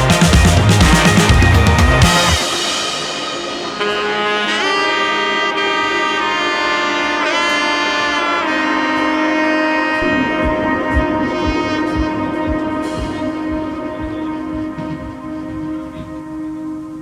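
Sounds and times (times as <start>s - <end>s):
drum beat: 0.0s - 4.2s, 10.0s - 16.3s
brass or saxophone line: 0.0s - 17.0s.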